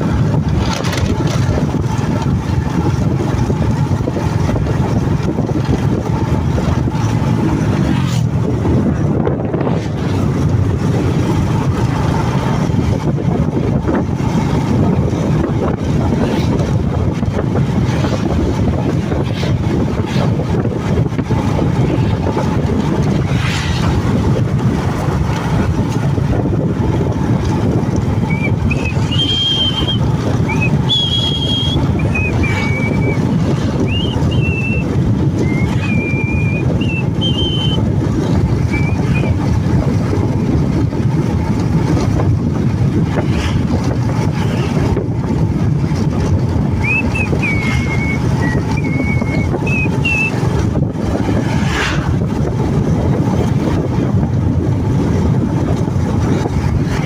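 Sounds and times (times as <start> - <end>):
motorcycle engine and road rumble: 0.0 - 57.0
wind noise on microphone: 0.0 - 57.0
high whistle-like tones: 28.3 - 33.2, 33.8 - 34.8, 35.4 - 37.8, 38.7 - 39.4, 46.8 - 50.4.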